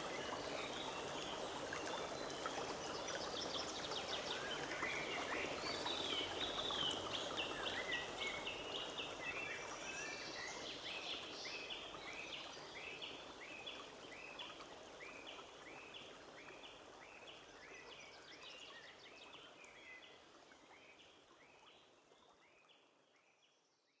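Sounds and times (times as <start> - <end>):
forest stream rushing: 0.0 - 14.2.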